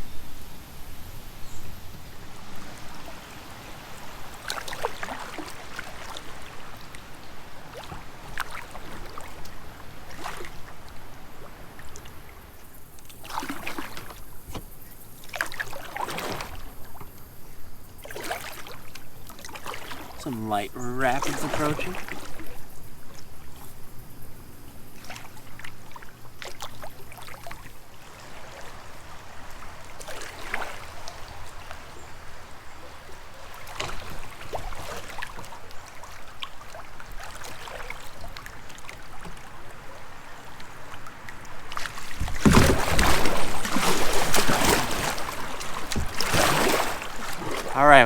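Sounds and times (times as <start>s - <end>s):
kayak paddle splashing: 2.0s - 48.0s
rushing rapids: 19.9s - 22.4s.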